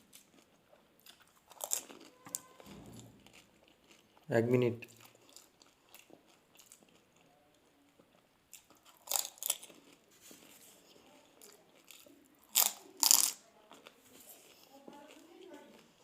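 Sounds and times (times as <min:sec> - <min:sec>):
chewing: 0:00.0 - 0:16.0
crisp shells crunching: 0:08.6 - 0:10.5, 0:12.0 - 0:13.4.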